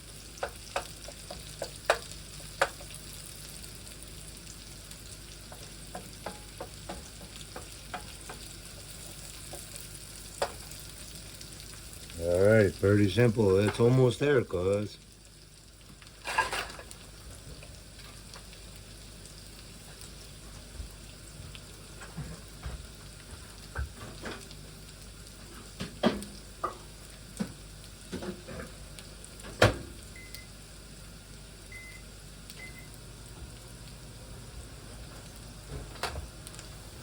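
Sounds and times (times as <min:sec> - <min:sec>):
potatoes sizzling in frying pan: 0:00.0 - 0:37.0
utensil clacking against pan: 0:05.5 - 0:09.8.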